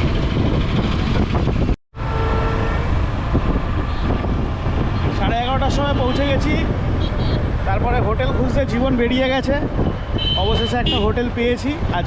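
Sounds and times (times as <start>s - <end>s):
wind rushing over microphone: 0.0s - 1.8s, 2.5s - 12.0s
motorcycle engine and road rumble: 0.0s - 12.0s.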